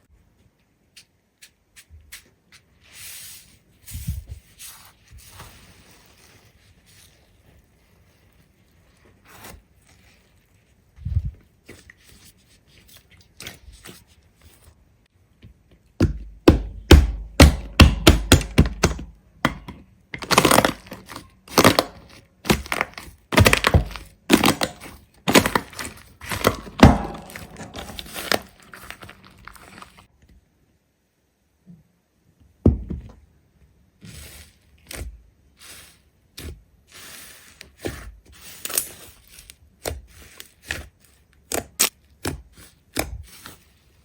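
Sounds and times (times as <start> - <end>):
sharp thunks and cracks: 16.0 - 29.6.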